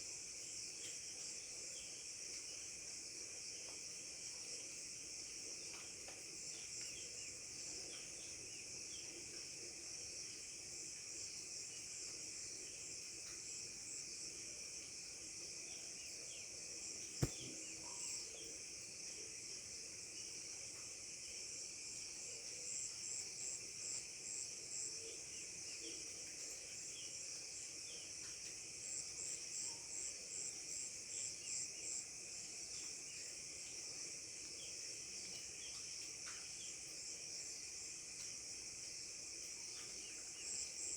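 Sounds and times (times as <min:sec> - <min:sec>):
sharp click: 0:17.2 - 0:17.5.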